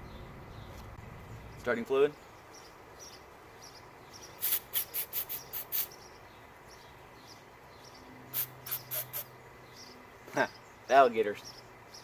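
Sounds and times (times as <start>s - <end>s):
aerosol spray hissing: 4.4s - 5.9s, 8.4s - 9.3s.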